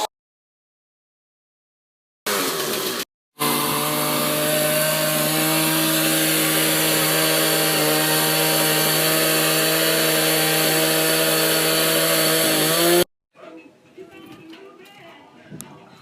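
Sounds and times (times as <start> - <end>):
chainsaw running: 2.3 - 13.1.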